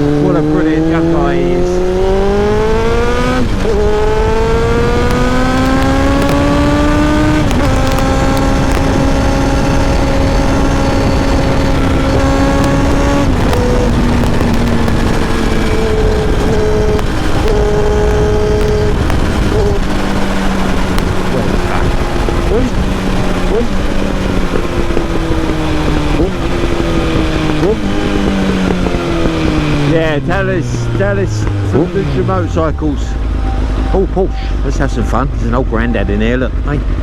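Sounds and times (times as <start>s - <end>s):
motorcycle engine shifting gears: 0.0s - 37.0s
wind rushing: 2.0s - 34.7s.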